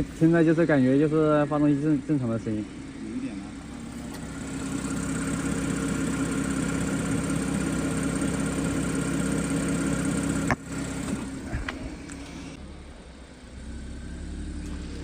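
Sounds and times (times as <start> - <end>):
car engine idling: 0.0 - 15.0
faint engine tick: 14.5 - 15.0.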